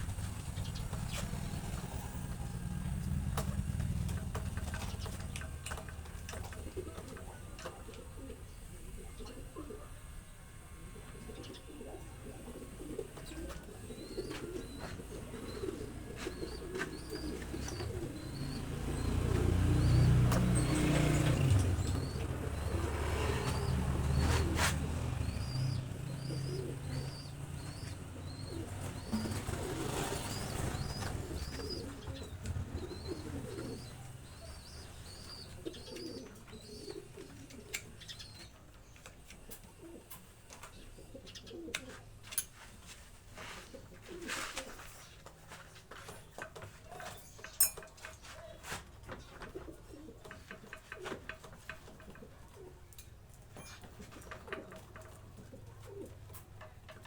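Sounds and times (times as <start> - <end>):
birds chirping: 0.0 - 42.2, 43.4 - 56.8
lower bird calls: 10.5 - 38.6.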